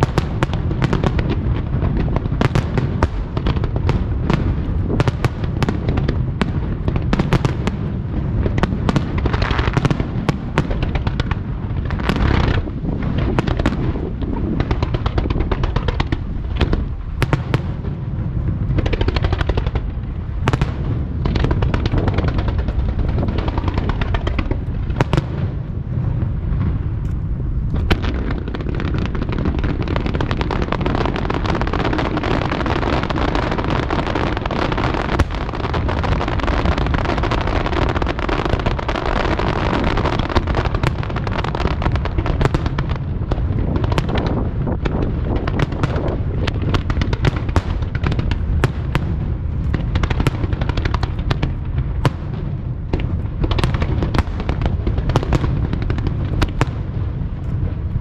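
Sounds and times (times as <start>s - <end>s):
fireworks crackling: 0.0s - 58.0s
fireworks shells booming: 0.0s - 58.0s
low rumble: 0.0s - 58.0s.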